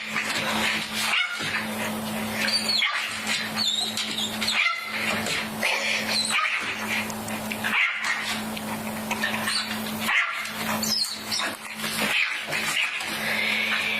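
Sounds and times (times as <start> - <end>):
puppy barking and yipping: 0.0 - 1.7, 2.4 - 5.4, 6.1 - 7.0, 7.6 - 8.4, 9.1 - 13.1
steady low hum: 0.0 - 13.9.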